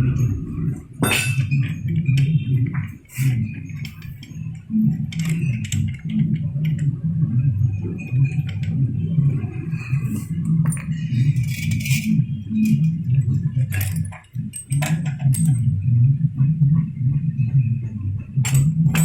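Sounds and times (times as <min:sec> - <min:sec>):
steady low hum: 0:00.0 - 0:19.0
small metal parts clinking: 0:01.0 - 0:01.7, 0:10.1 - 0:12.9, 0:13.7 - 0:15.6, 0:18.5 - 0:19.0.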